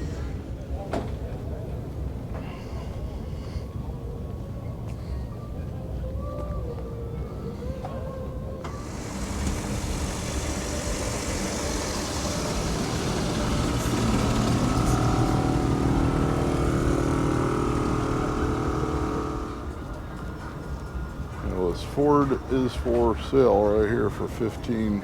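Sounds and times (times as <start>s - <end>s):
car engine running: 8.7s - 20.6s.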